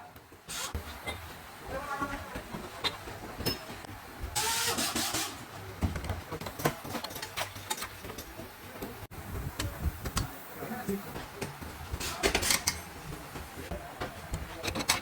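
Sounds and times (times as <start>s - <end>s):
loud hiss: 0.5s - 0.8s, 4.4s - 5.5s
metal parts and tools clicking: 12.0s - 12.9s, 14.3s - 15.0s.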